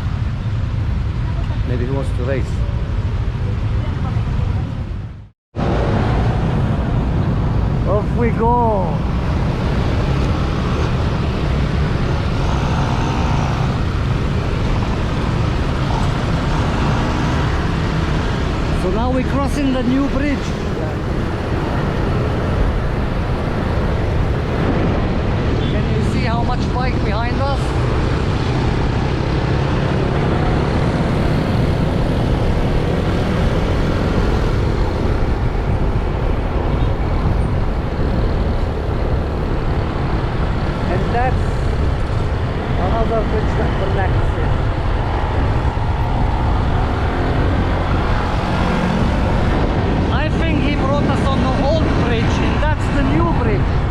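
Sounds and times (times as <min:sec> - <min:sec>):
road traffic: 0:00.0 - 0:53.9
wind buffeting microphone: 0:02.7 - 0:53.9
motorbike running at speed: 0:03.2 - 0:53.9
motorbike engine: 0:09.3 - 0:18.8.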